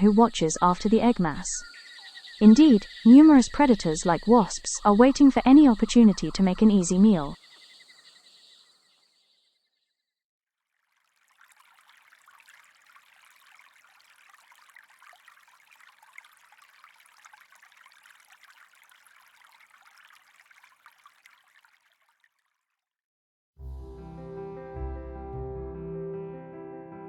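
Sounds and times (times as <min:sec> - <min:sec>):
faint running water: 0:00.0 - 0:09.0, 0:10.6 - 0:22.8.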